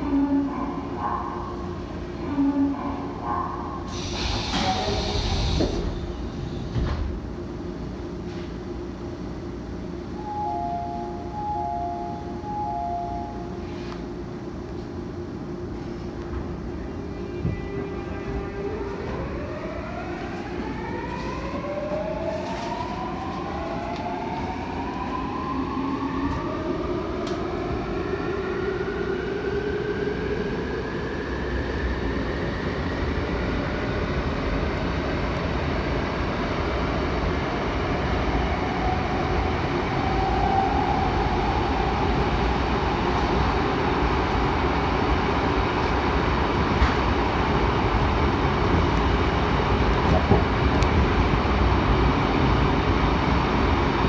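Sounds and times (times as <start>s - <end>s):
wheels rumbling on rails: 41.8s - 54.0s.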